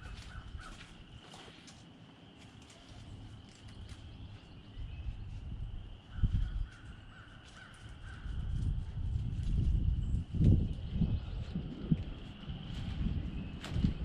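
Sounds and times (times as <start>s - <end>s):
bird calling: 0.0s - 1.7s, 2.6s - 8.5s
steady high hum: 0.0s - 14.0s.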